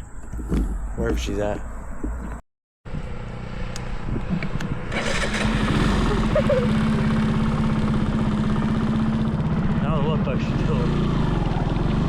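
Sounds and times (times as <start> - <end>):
mini bike engine running: 4.6 - 12.0.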